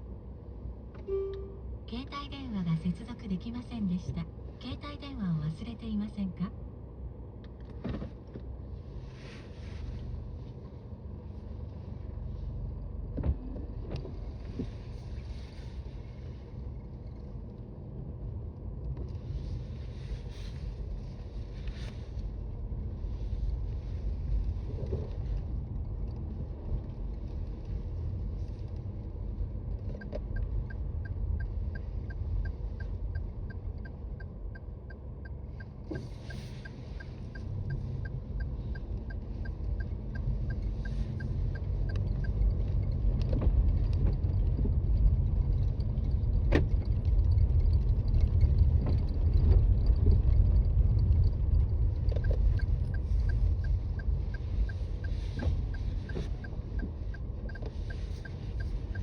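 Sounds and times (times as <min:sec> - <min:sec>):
road and tyre rumble: 0:00.0 - 0:59.0
light regular ticking: 0:27.0 - 0:59.0.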